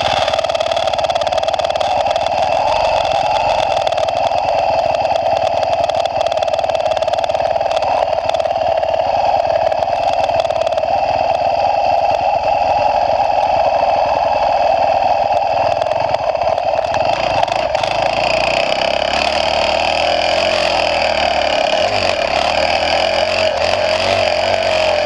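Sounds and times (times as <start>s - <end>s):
motocross bike engine running: 0.0s - 25.0s.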